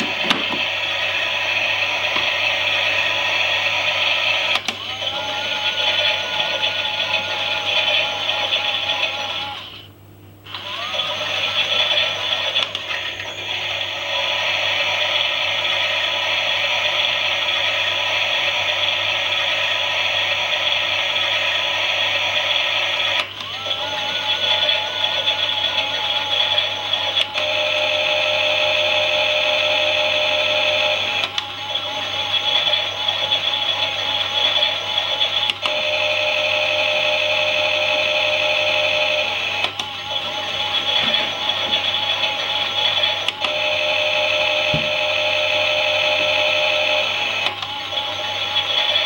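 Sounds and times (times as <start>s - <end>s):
toy washing machine whirring: 0.0s - 9.9s, 10.5s - 49.0s
two-tone wavering whine: 10.9s - 49.0s.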